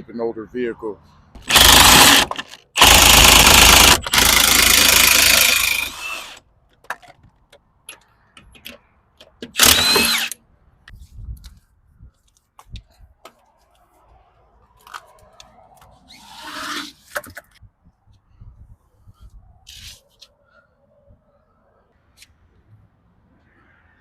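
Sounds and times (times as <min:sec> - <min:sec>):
handheld power tool running: 0:01.4 - 0:06.4, 0:09.6 - 0:10.4.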